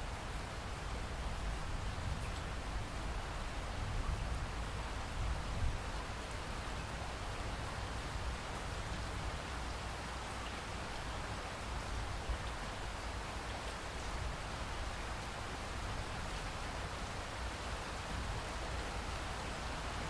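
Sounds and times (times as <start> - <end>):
heavy rain: 0.0 - 20.0.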